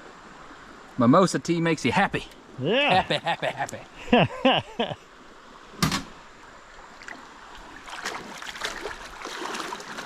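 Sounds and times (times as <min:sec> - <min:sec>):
water rustling: 0:02.2 - 0:10.0.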